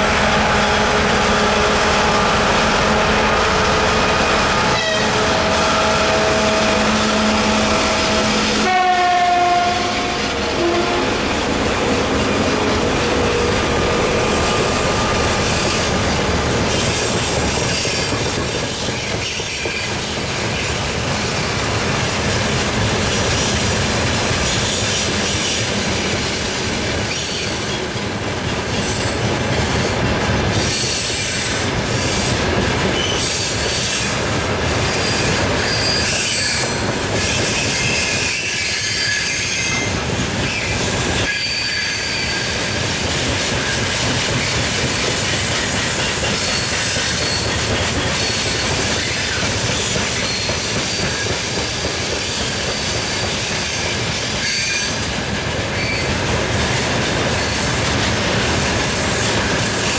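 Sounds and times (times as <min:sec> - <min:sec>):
freight train wheels rumbling: 0:00.0 - 0:59.9
high-pitched wheel squeals: 0:35.0 - 0:39.9, 0:40.5 - 0:42.6.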